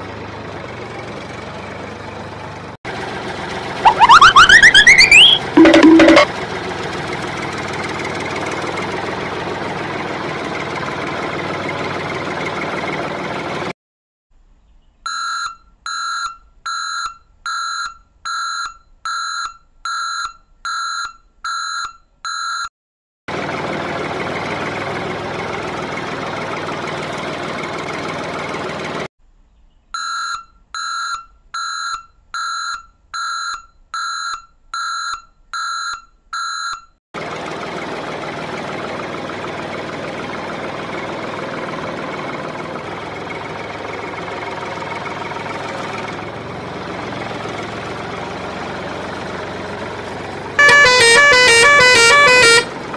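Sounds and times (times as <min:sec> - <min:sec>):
truck engine running: 0:00.0 - 0:13.7, 0:23.3 - 0:29.1, 0:37.2 - 0:52.9
high electronic beeps: 0:03.9 - 0:06.3.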